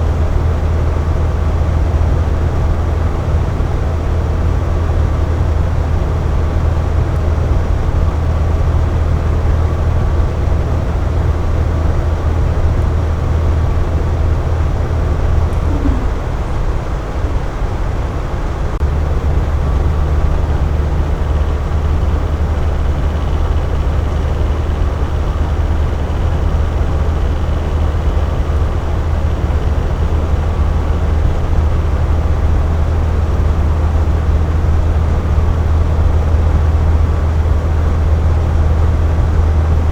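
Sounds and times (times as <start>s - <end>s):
air conditioner hum: 0.0s - 39.9s
rush of blown air: 15.5s - 16.5s.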